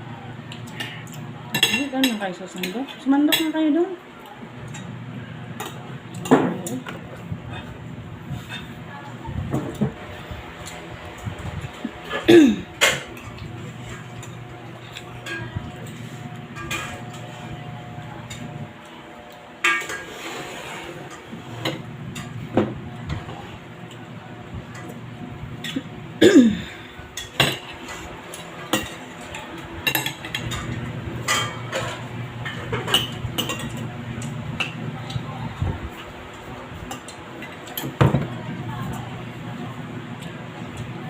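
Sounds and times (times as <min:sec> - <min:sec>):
steady low hum: 0:04.4 - 0:19.6
cutlery clinking on plates: 0:12.0 - 0:18.5, 0:19.3 - 0:23.3, 0:27.2 - 0:33.9.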